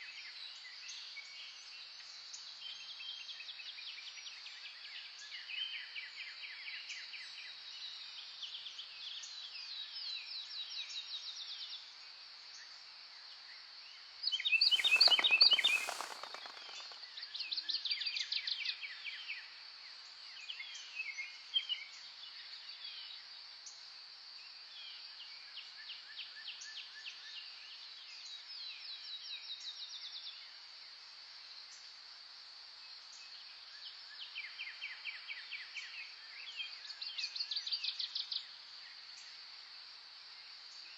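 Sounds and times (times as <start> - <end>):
songbirds singing: 14.6 - 17.0.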